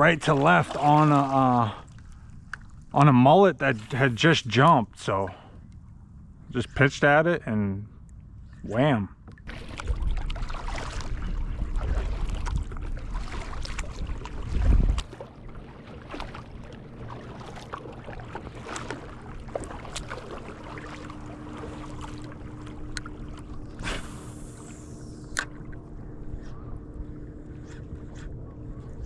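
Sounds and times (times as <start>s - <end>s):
faint steady hum: 0.0s - 29.0s
water: 0.0s - 29.0s
wind buffeting microphone: 9.4s - 15.2s.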